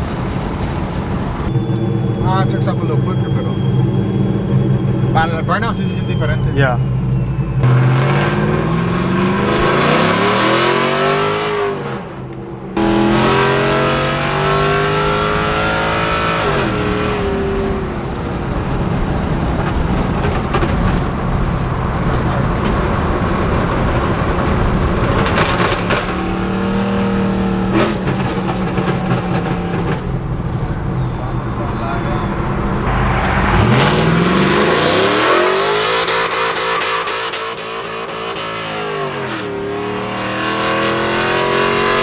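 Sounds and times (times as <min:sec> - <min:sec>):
pickup truck engine accelerating: 0:00.0 - 0:42.0
loud steady rushing noise: 0:31.2 - 0:36.8.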